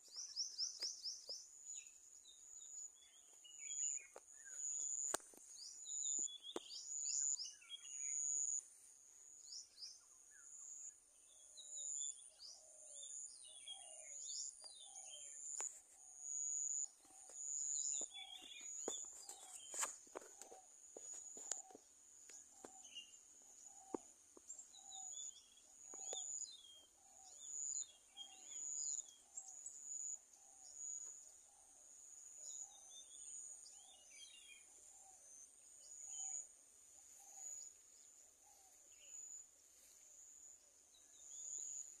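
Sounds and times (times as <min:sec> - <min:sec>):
birds chirping: 0:09.4 - 0:31.3.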